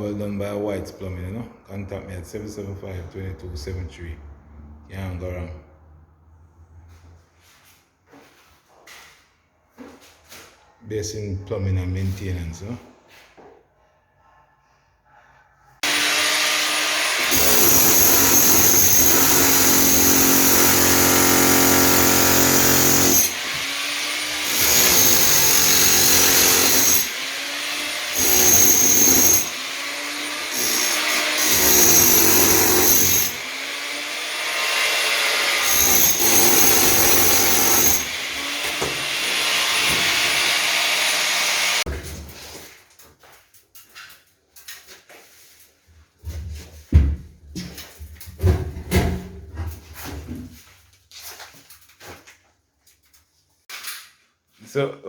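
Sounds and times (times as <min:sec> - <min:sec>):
electric power tool motor whine: 0:15.8 - 0:41.9.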